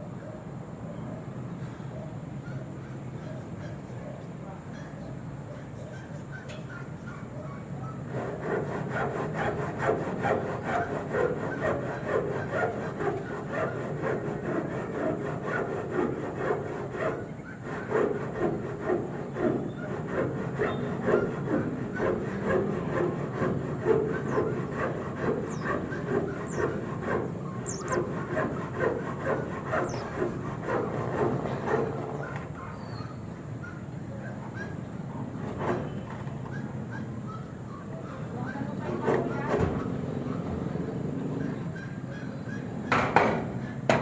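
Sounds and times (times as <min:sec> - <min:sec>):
hand saw cutting wood: 0:08.1 - 0:32.5, 0:35.4 - 0:36.0, 0:38.9 - 0:39.8.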